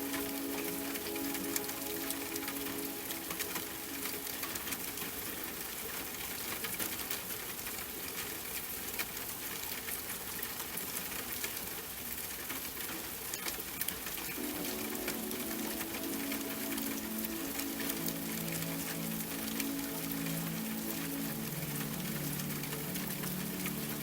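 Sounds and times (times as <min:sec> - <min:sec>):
soft sustained music tones: 0:00.0 - 0:06.3, 0:14.3 - 0:24.0
steady rain: 0:00.0 - 0:24.0.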